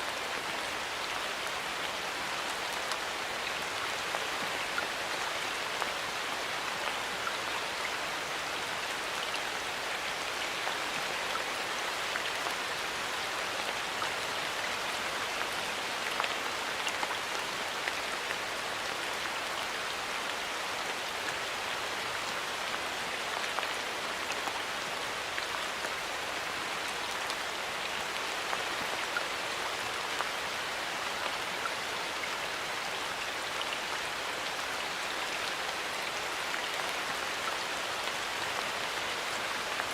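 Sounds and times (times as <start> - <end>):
rain falling in a forest: 0.0 - 39.9.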